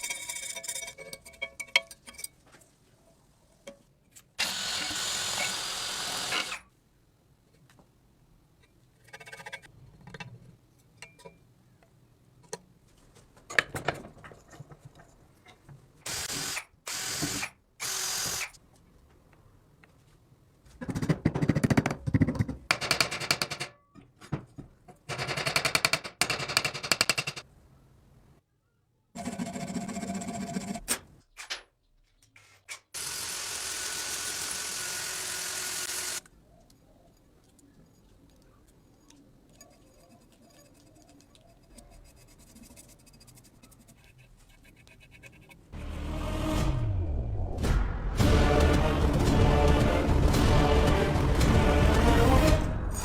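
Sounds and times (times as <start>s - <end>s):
power tools running in bursts: 33.0s - 36.2s.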